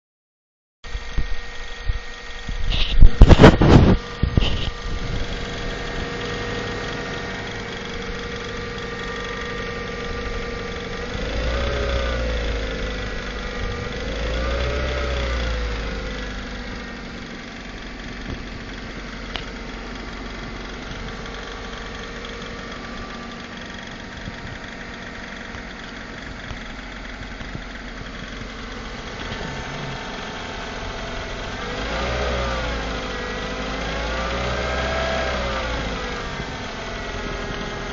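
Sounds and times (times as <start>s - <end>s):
car engine idling with a knock: 1.0s - 11.5s, 12.3s - 31.8s.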